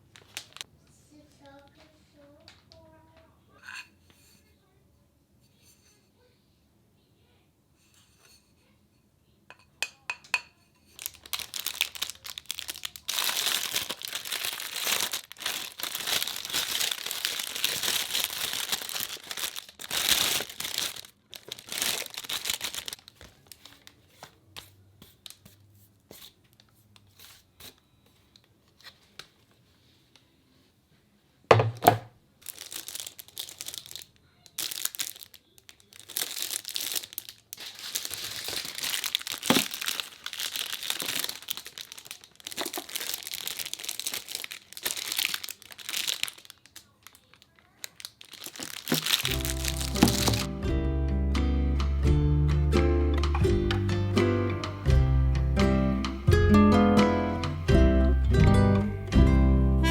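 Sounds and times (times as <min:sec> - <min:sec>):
plastic packaging crinkling: 0:00.0 - 0:00.7, 0:10.9 - 0:25.6, 0:32.4 - 0:50.5
object set down knock: 0:31.5 - 0:32.1, 0:50.0 - 0:50.5.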